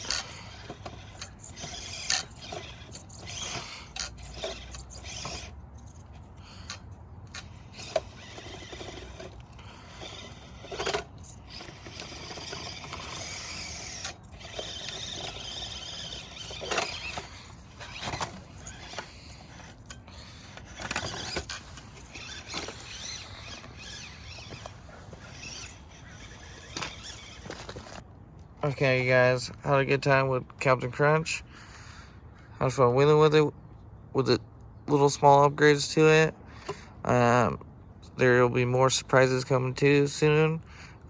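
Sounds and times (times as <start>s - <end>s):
toy car motor and gears: 0.0s - 28.0s
tyres scraping and clicking: 0.0s - 28.0s.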